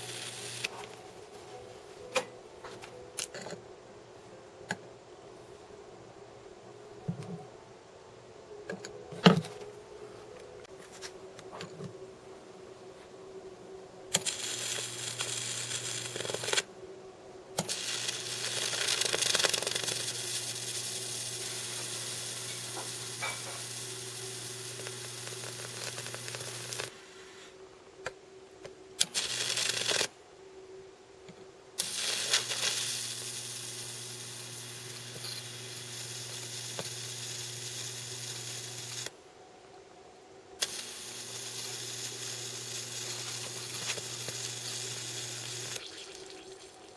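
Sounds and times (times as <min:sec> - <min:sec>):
high-voltage arc sizzling: 0:00.0 - 0:01.0, 0:14.1 - 0:16.7, 0:17.6 - 0:27.5, 0:29.0 - 0:30.2, 0:31.8 - 0:39.2, 0:40.6 - 0:46.9.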